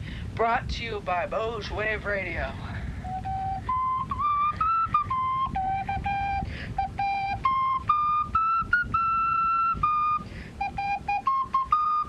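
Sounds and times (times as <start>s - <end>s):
flute player breaths: 2.6s - 4.0s, 6.2s - 6.8s, 10.2s - 10.7s
small flute tune: 2.9s - 12.0s.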